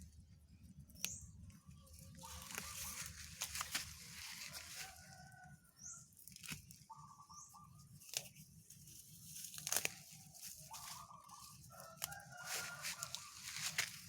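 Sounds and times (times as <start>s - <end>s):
chickens clucking: 1.6s - 5.4s, 10.6s - 14.0s
roots ripping from soil: 2.0s - 5.3s, 6.2s - 6.9s, 8.0s - 14.0s.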